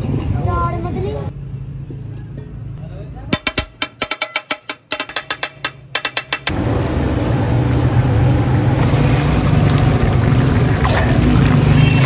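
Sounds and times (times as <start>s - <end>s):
chicken deep-frying in oil: 8.4s - 12.0s.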